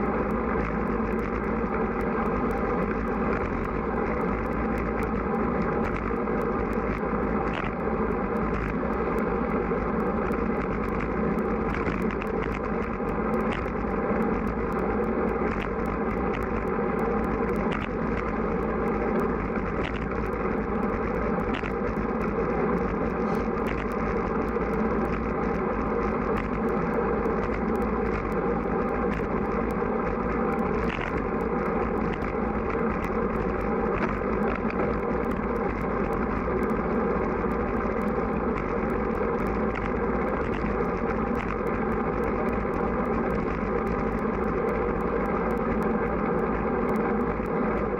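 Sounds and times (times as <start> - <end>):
small scattered ticks: 0.0 - 47.9.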